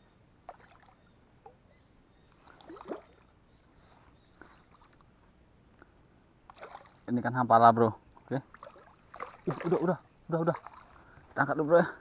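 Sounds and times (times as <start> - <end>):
light water splashing: 0.4 - 1.6, 2.3 - 5.2, 5.8 - 7.4, 8.1 - 11.6.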